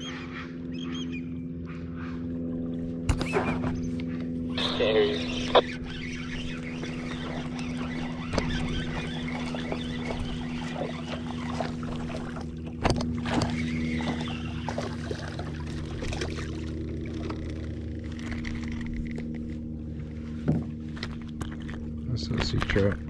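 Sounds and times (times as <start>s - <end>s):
small boat motor running: 0.0s - 23.0s
water around hull: 0.0s - 23.0s.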